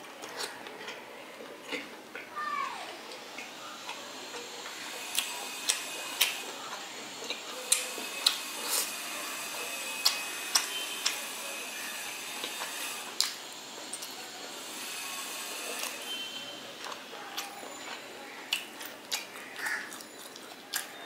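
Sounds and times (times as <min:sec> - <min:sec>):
wet chewing smacks: 0:16.9 - 0:21.0.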